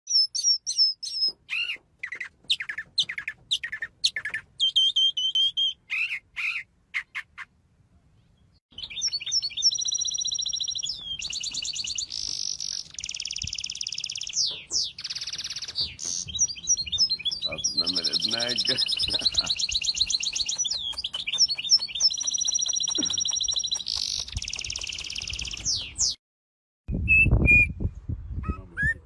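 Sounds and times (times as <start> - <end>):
birds chirping and whistling: 0.1 - 7.5, 8.3 - 26.2, 27.0 - 29.0
fast bird trills: 8.8 - 26.1.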